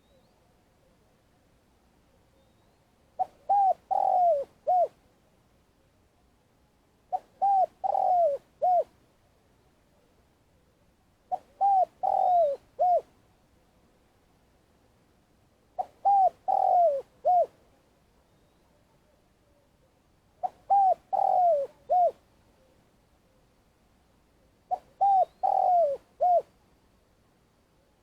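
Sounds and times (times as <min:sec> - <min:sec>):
dove cooing: 0:03.2 - 0:05.0, 0:07.1 - 0:08.9, 0:11.3 - 0:13.1, 0:15.8 - 0:17.6, 0:20.4 - 0:22.2, 0:24.7 - 0:26.6.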